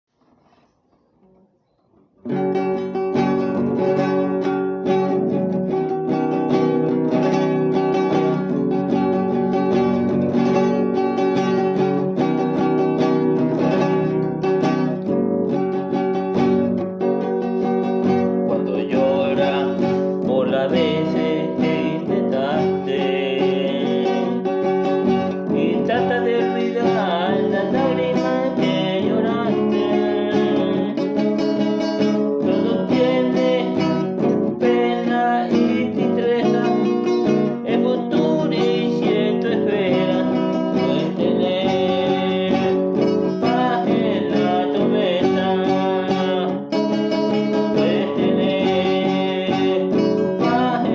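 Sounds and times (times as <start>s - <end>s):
acoustic guitar: 0.1s - 50.9s
person singing: 17.2s - 50.9s.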